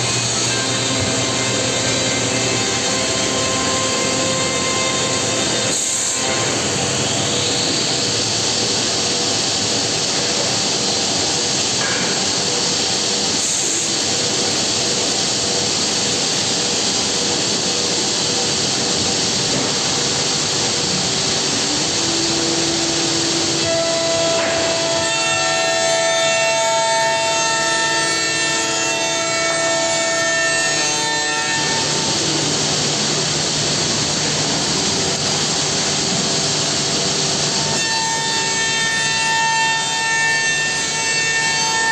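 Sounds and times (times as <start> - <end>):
steady whining tones: 0.0 - 9.0, 18.3 - 25.9
cnc machine cutting wood: 0.0 - 41.9.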